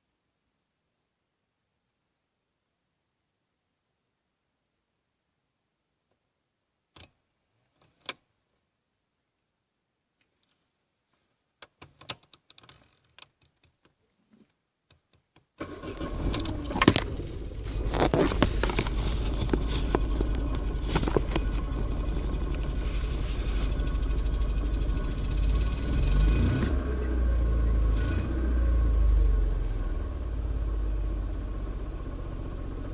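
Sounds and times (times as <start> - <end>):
engine clicks and clatter: 15.6 - 27.2
car engine rumbling: 15.6 - 32.9.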